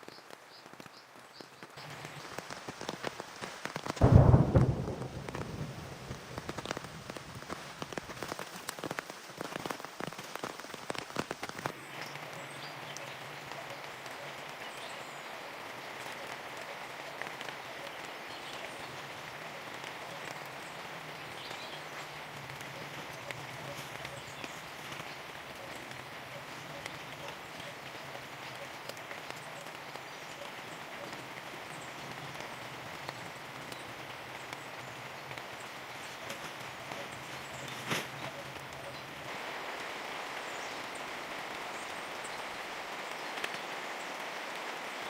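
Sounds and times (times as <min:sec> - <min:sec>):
rain falling: 0:00.0 - 0:45.0
thunder clap: 0:03.9 - 0:08.5.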